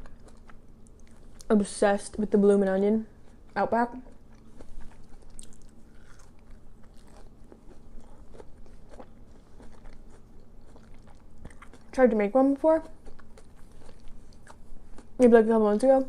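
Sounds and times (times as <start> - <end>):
person chewing crispy onion rings: 0.0 - 1.5, 3.1 - 12.0, 12.8 - 15.2.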